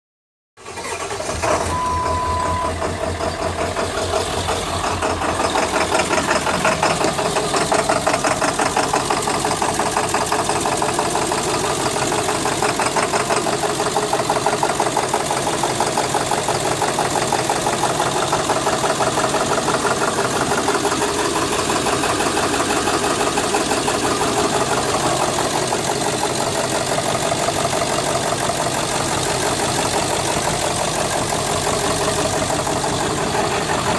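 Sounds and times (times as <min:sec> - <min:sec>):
diesel engine idling roughly: 0:00.6 - 0:33.9
short beep: 0:01.6 - 0:02.8.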